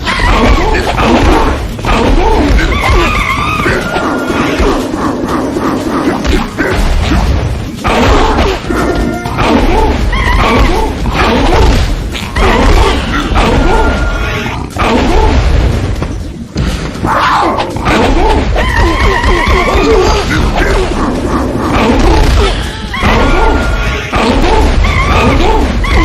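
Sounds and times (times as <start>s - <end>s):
dramatic soundtrack music: 0.0s - 26.0s
booming impacts and crashes: 6.3s - 26.0s.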